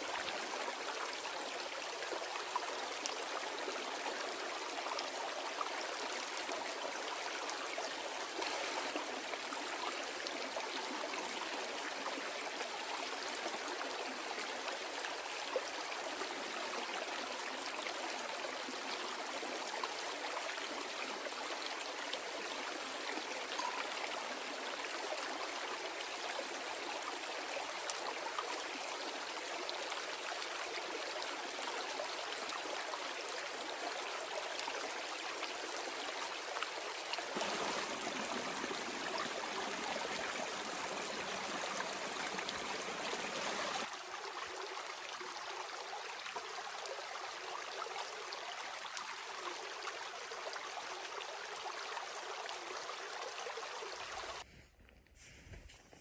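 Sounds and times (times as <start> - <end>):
running water rushing: 4.6 - 11.7, 36.4 - 43.9.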